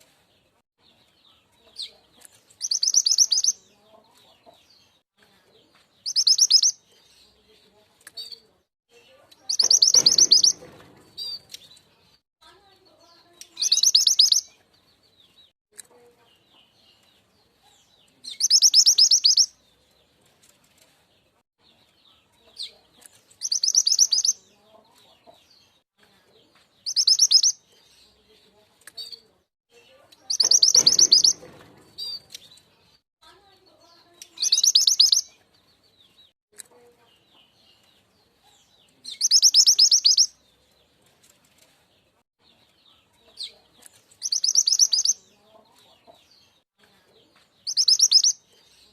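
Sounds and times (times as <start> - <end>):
high fast-pulsed bird trills: 9.5 - 10.7, 30.3 - 31.5.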